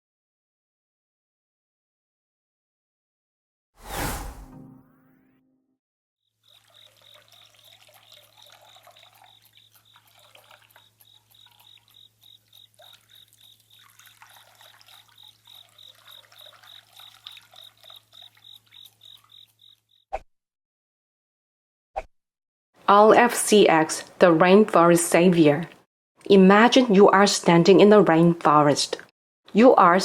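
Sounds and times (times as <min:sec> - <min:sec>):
trickling water: 0:06.4 - 0:20.0
high chirping call: 0:14.8 - 0:19.8.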